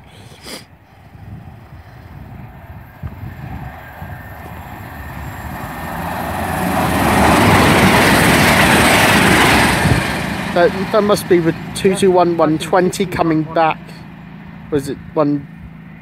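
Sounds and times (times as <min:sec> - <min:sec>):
diesel train passing at speed: 0:00.0 - 0:16.0.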